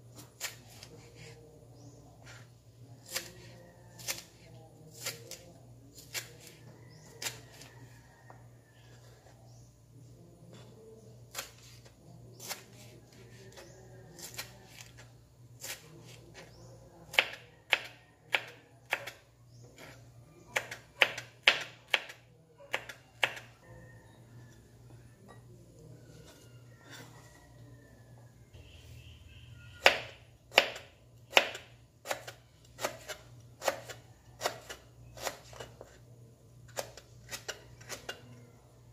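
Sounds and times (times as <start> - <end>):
knife chopping on cutting board: 29.8 - 36.0.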